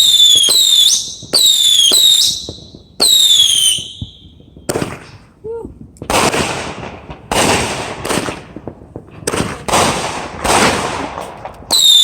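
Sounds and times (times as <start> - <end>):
whistling firework: 0.0 - 5.1, 11.6 - 12.0
firework bangs: 0.0 - 12.0
firework crackle: 0.0 - 12.0.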